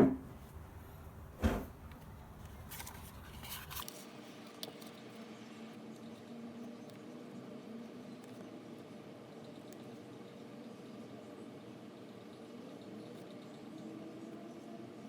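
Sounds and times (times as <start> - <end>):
faint steady hum: 0.0 - 15.0
packaging scraping and rustling: 2.6 - 4.1.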